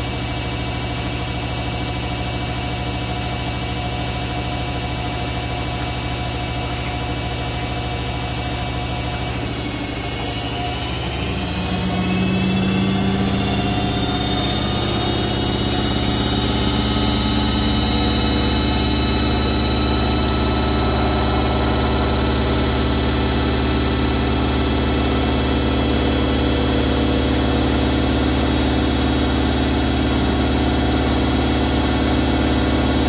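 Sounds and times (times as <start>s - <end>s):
washing machine spin cycle: 0.0s - 33.0s
motor whine rising in pitch: 8.1s - 33.0s.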